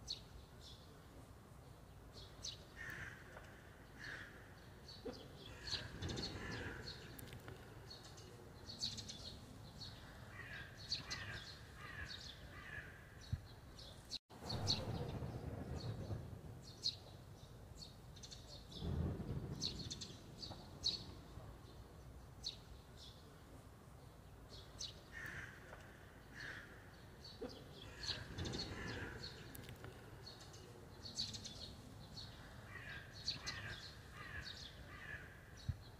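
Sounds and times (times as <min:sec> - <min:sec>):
small birds chirping: 0:00.0 - 0:35.9.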